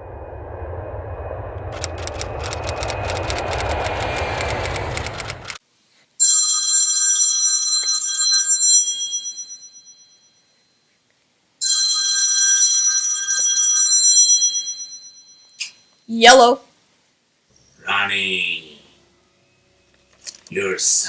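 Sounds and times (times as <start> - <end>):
steady rushing noise: 0.0 - 5.6
telephone ringing: 11.6 - 15.6.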